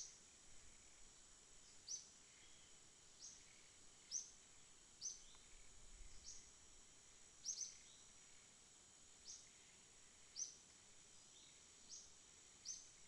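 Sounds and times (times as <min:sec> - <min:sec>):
high insect trill: 0:00.0 - 0:13.0.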